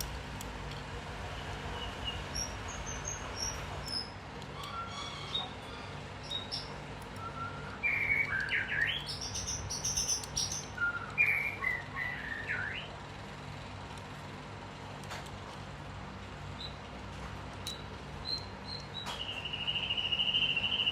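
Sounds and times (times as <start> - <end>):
steady low hum: 0.0 - 20.9
bird chirping: 1.7 - 12.9, 17.7 - 20.9.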